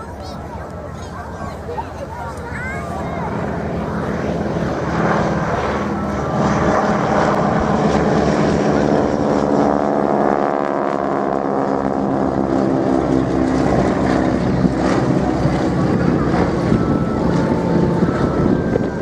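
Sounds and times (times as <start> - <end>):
biplane radial engines flying past: 0.0 - 19.0
rush of wind: 11.9 - 19.0.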